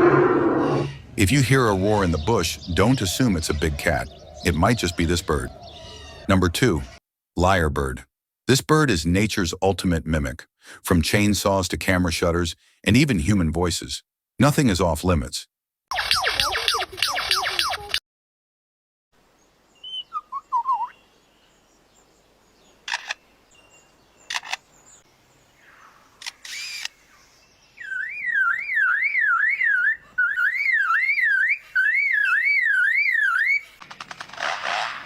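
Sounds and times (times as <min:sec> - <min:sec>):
wavering whistle: 0:20.0 - 0:20.9, 0:27.8 - 0:33.7
camera shutter-like clicks: 0:22.9 - 0:23.2, 0:24.3 - 0:24.6, 0:26.2 - 0:27.0.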